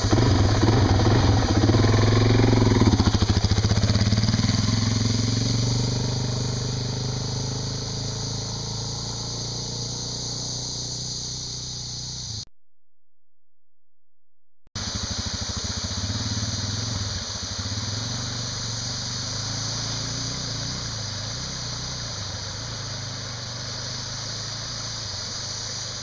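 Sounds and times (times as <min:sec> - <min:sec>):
motorcycle engine running: 0:00.0 - 0:12.5, 0:14.8 - 0:26.0.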